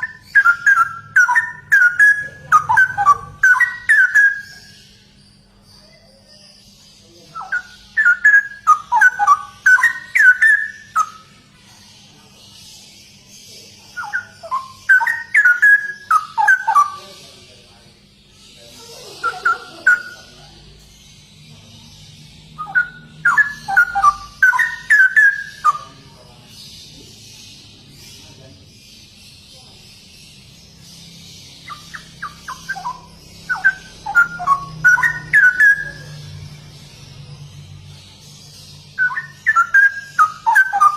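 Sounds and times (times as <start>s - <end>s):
bird singing bubbling whistles: 0.0s - 4.7s, 7.4s - 11.2s, 14.0s - 17.0s, 22.6s - 25.9s, 31.7s - 36.0s, 39.0s - 40.9s.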